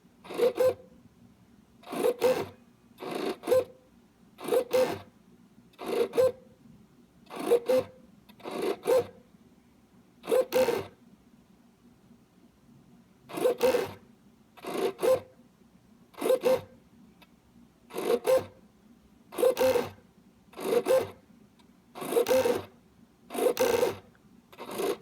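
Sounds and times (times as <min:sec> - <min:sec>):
servo motor buzzing: 0:00.3 - 0:00.8, 0:01.9 - 0:03.7, 0:04.4 - 0:05.1, 0:13.4 - 0:14.0, 0:16.2 - 0:16.7, 0:17.9 - 0:18.5, 0:19.4 - 0:20.0, 0:20.6 - 0:21.2, 0:22.0 - 0:22.7, 0:23.3 - 0:24.0, 0:24.6 - 0:25.0.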